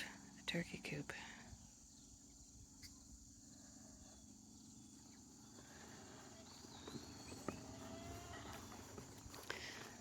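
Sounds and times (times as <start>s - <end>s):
faint footsteps: 5.6s - 10.0s.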